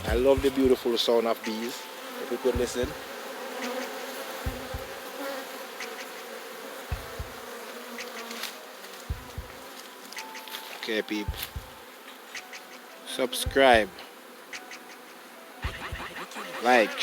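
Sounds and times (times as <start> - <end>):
short low thumps: 0.0 - 0.8, 4.5 - 5.0, 6.9 - 7.4, 9.1 - 9.6, 11.3 - 11.8, 15.6 - 16.2
honey bees buzzing: 0.0 - 17.0.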